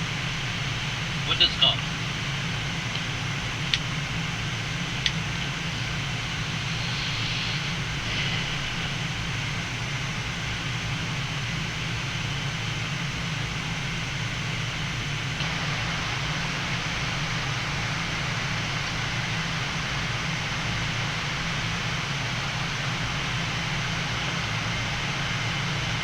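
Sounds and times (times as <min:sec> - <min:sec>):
airflow hiss: 0:02.5 - 0:11.4, 0:15.3 - 0:26.0.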